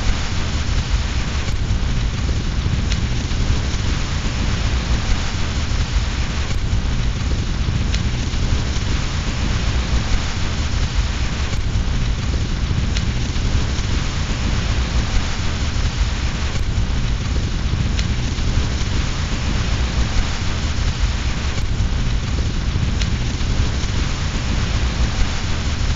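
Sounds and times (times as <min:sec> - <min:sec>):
deep continuous rumble: 0:00.0 - 0:25.9
steady rain: 0:00.0 - 0:25.9
wood fire crackling: 0:00.0 - 0:25.9.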